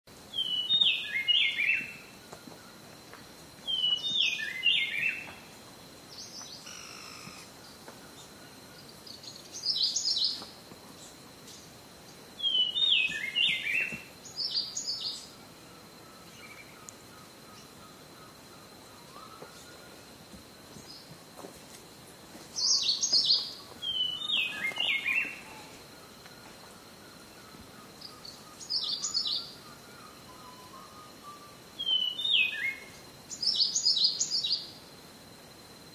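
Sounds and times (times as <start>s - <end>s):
wild birds singing: 0.2s - 21.3s, 21.9s - 34.8s
thin steady high tone: 22.6s - 34.8s.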